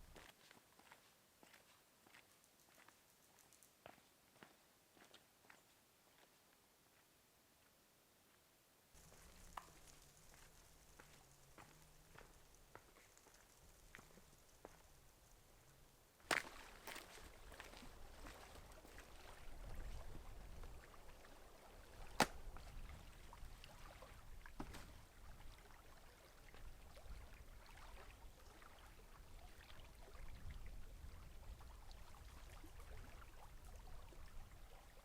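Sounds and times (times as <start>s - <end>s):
water trickling and dripping: 9.0s - 35.0s.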